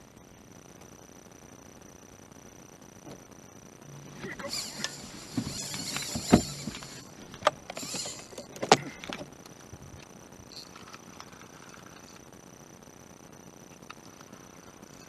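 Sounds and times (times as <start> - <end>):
gear knocking against boat: 4.5 - 9.2.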